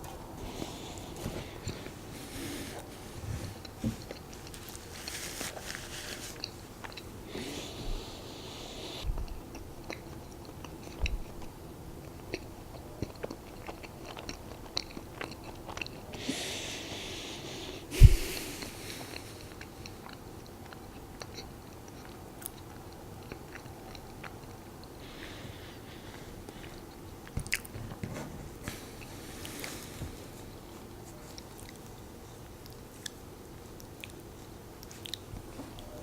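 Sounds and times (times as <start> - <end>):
chewing soft food: 3.5 - 36.0
soft low thumps: 17.9 - 18.4.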